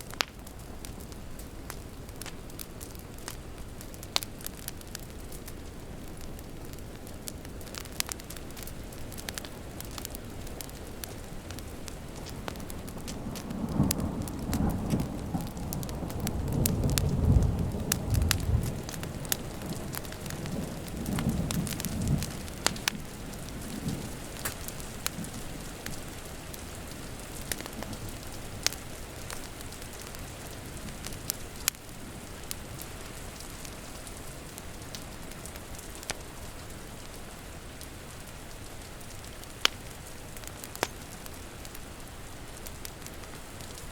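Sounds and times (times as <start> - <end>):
steady rain: 0.0 - 43.9
wood fire crackling: 0.0 - 43.9
thunder rumbling: 13.1 - 25.9.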